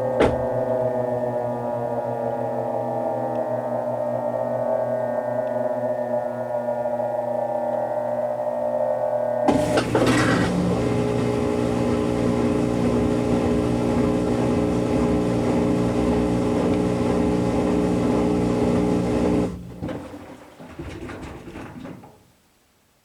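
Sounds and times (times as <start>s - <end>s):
washing machine spinning: 9.5s - 22.2s.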